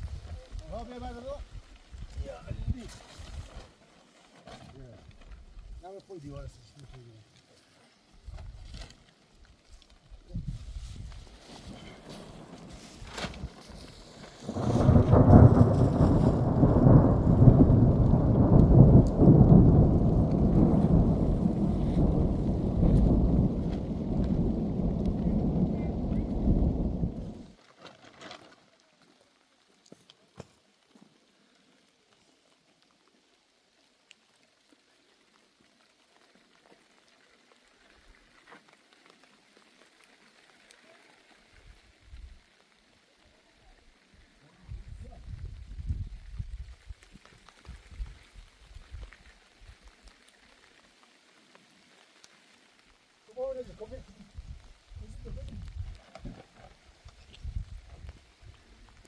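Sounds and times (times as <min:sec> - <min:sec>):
light rain patter: 0:00.0 - 0:59.0
thunder rumbling: 0:11.7 - 0:27.5.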